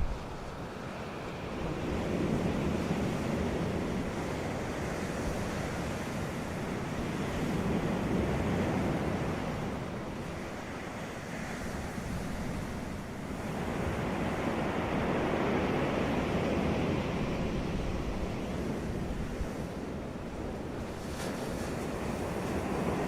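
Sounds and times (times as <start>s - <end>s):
wind on microphone: 0.0s - 0.8s
ocean waves on beach: 0.0s - 23.0s.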